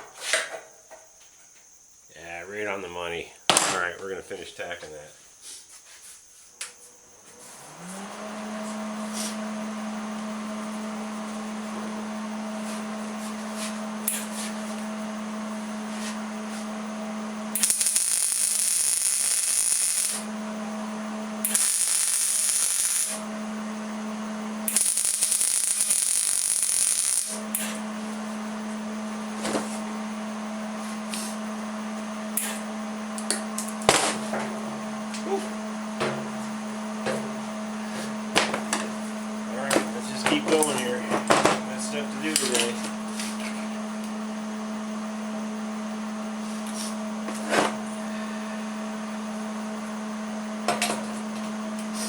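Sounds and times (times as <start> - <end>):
electric welder humming: 6.6 - 52.0
welding crackling hiss: 14.0 - 14.6, 17.5 - 20.3, 21.4 - 23.3, 24.6 - 27.8.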